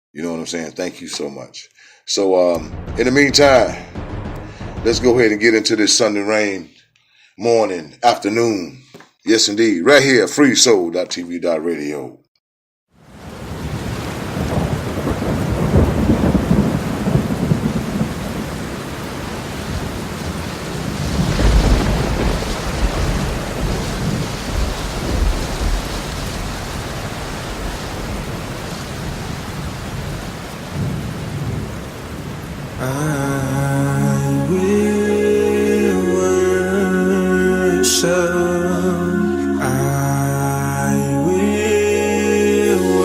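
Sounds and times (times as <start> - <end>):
steady rain: 13.0 - 35.6
rolling thunder: 13.2 - 32.9.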